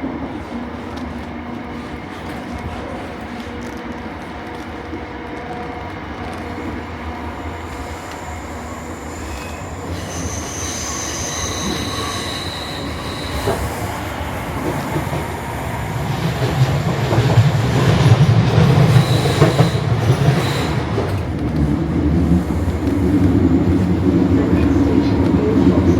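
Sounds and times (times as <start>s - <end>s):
train running on track: 0.0s - 25.9s.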